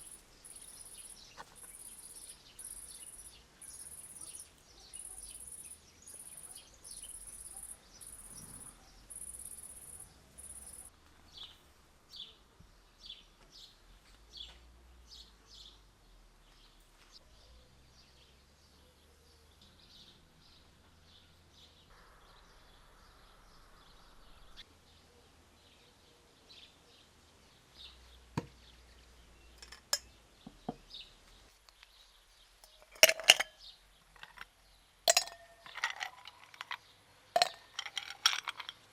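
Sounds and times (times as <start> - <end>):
sharp knocks and clinks: 29.6 - 30.8, 32.6 - 34.5, 35.1 - 38.9.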